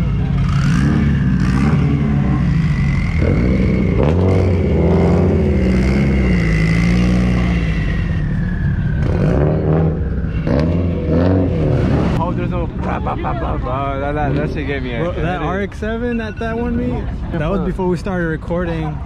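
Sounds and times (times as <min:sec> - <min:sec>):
car engine driving slowly: 0:00.0 - 0:19.0.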